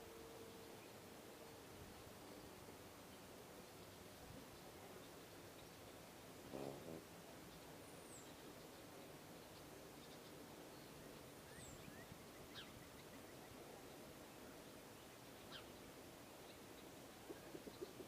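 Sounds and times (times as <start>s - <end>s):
steady low hiss: 0.0s - 18.0s.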